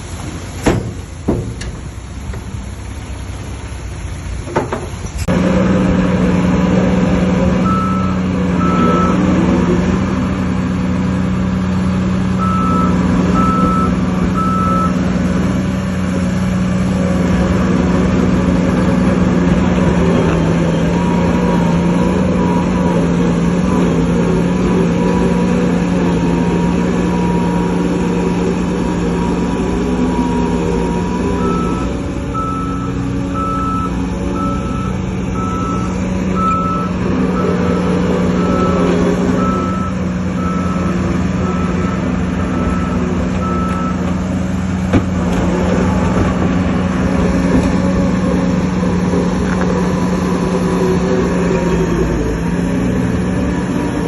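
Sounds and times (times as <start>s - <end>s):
heavy diesel engine running: 0.0s - 54.0s
reversing alarm beeps: 7.6s - 9.2s, 12.4s - 15.0s, 31.0s - 44.0s.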